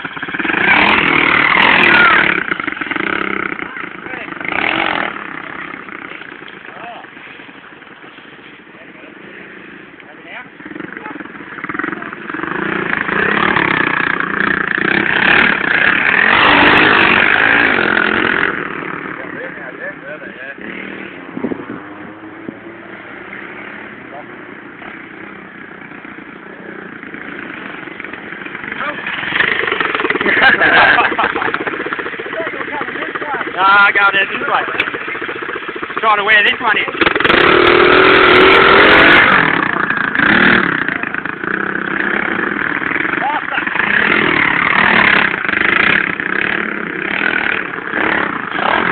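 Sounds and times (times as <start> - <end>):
pit bike engine revving: 0.0 - 48.9.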